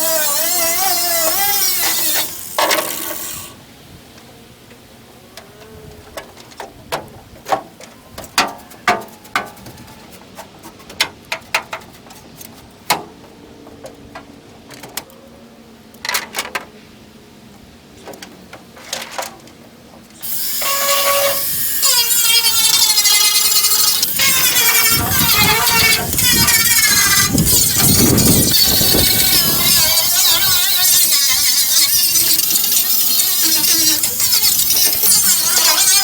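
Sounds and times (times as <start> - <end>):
angle grinder running: 20.2 - 36.0.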